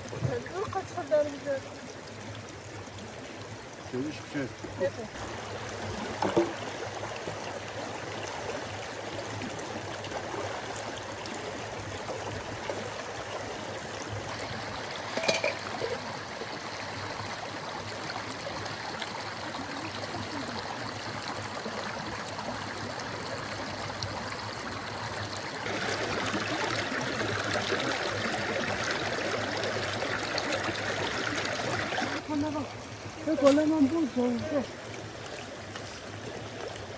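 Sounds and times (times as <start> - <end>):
river rushing: 25.6 - 35.4.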